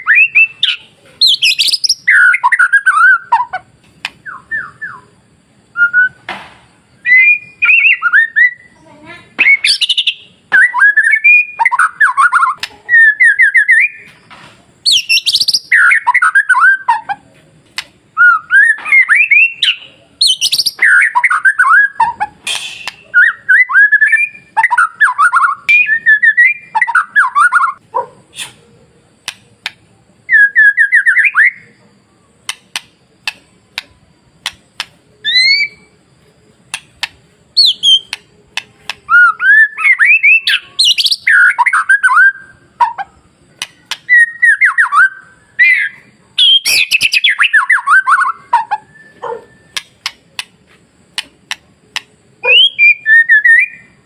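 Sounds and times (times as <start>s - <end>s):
sharp bird clicks: 0.6s - 3.2s, 3.8s - 5.0s, 11.7s - 12.8s, 14.9s - 16.4s, 17.7s - 18.0s, 18.8s - 23.2s, 29.2s - 29.9s, 32.4s - 35.8s, 36.6s - 39.2s, 43.6s - 45.1s, 46.4s - 52.2s
shama whistled song: 4.2s - 5.1s, 5.7s - 6.3s, 7.0s - 8.8s, 9.4s - 14.1s, 18.2s - 27.8s, 30.3s - 31.8s, 35.2s - 36.0s, 39.1s - 43.1s, 44.1s - 49.9s, 52.4s - 54.0s.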